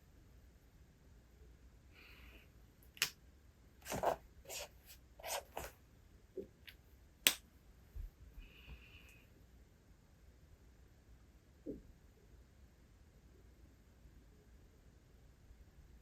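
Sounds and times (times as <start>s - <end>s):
page turning rustle: 3.8s - 5.8s.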